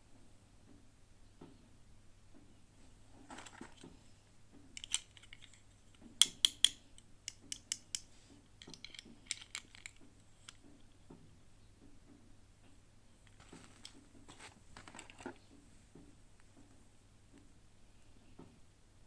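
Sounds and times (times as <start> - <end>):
plastic pieces clicking and tapping: 4.7 - 10.9, 13.2 - 15.5.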